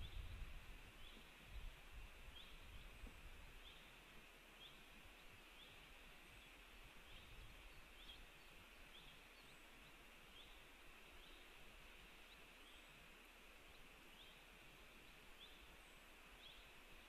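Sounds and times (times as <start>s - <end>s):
faint wind rumble: 0.0s - 9.0s
low hiss: 0.0s - 17.0s.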